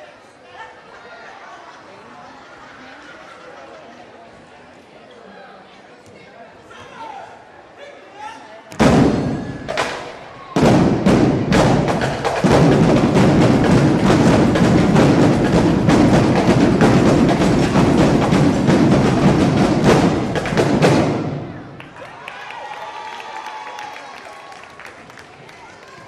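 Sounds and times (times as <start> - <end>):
snare and bass drums cadence: 8.8 - 21.8.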